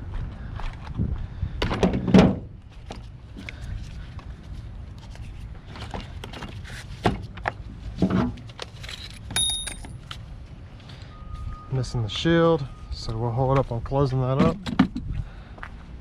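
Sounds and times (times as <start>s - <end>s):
heavy thumps of parts and tools: 1.6s - 2.5s.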